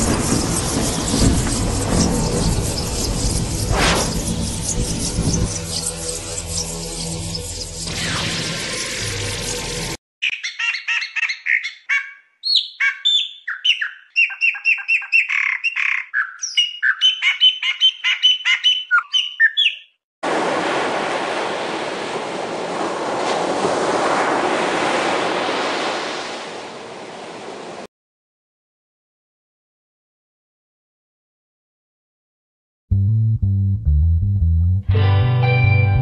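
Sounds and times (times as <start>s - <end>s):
songbird singing chirps and trills: 10.2s - 20.0s
rushing water: 20.2s - 27.9s.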